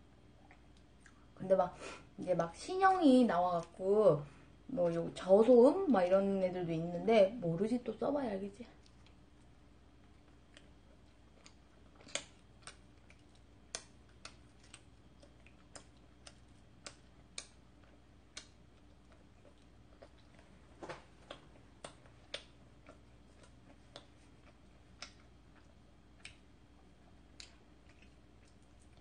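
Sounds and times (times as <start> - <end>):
mouth chewing soft bread: 0.0 - 1.4, 8.7 - 29.0.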